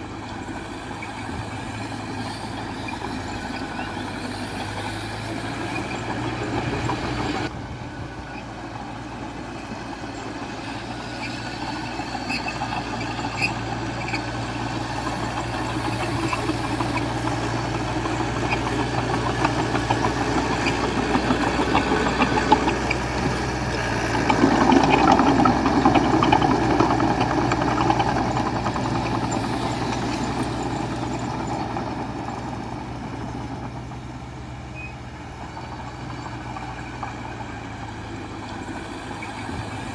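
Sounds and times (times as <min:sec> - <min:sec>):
heavy machinery diesel engine running: 0:00.0 - 0:39.9.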